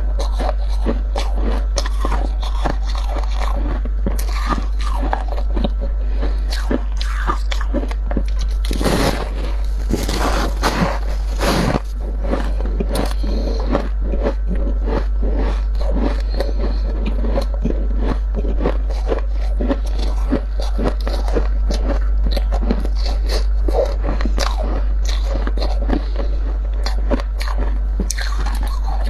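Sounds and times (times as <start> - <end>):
steady low hum: 0.0 - 29.0
frost being scraped and crunched: 8.5 - 22.0.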